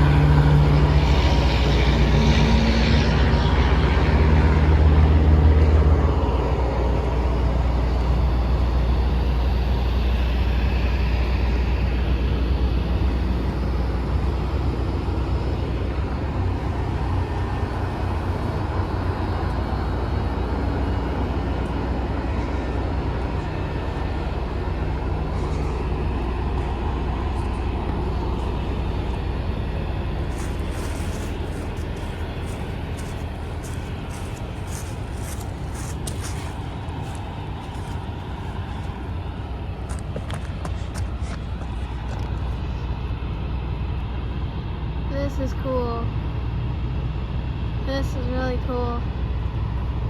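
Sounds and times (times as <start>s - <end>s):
diesel locomotive idling: 0.0s - 50.0s.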